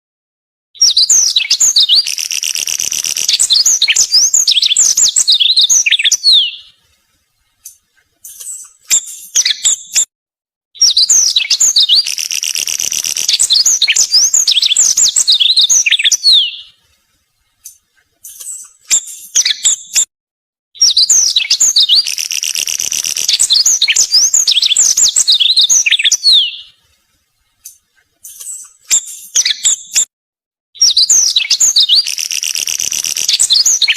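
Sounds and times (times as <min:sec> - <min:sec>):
bird chirps: 0:00.8 - 0:06.8, 0:10.8 - 0:16.8, 0:20.8 - 0:26.8, 0:27.6 - 0:30.1, 0:30.8 - 0:33.9
bird singing trills and whistles: 0:00.8 - 0:06.8, 0:08.3 - 0:10.1, 0:10.8 - 0:16.8, 0:18.3 - 0:20.1, 0:20.8 - 0:26.8, 0:28.2 - 0:30.1, 0:30.8 - 0:33.9.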